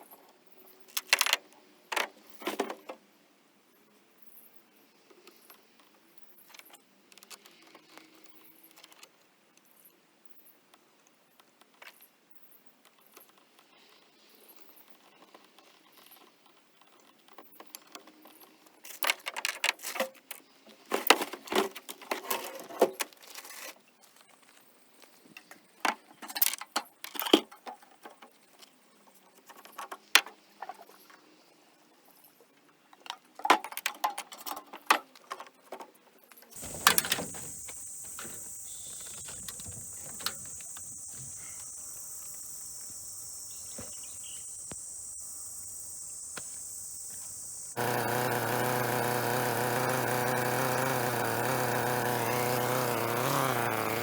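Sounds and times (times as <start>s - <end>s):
cicadas shrilling: 36.6s - 54.0s.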